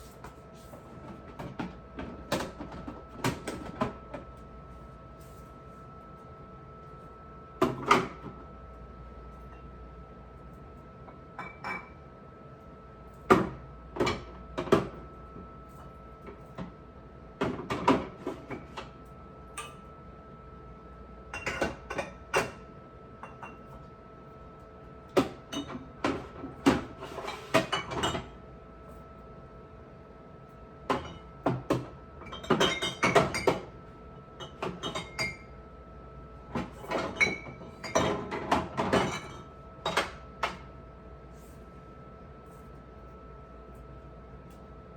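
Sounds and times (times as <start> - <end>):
dishes and glass clinking: 32.3 - 33.6, 36.9 - 40.1.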